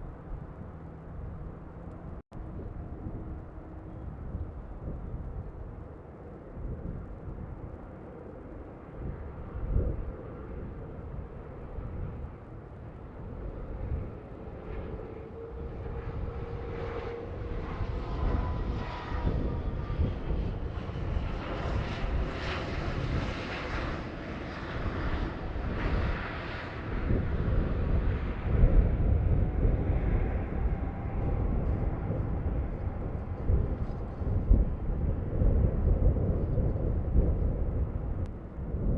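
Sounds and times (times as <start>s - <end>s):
jet airliner engines: 0.0s - 38.9s
wind buffeting microphone: 0.0s - 38.9s.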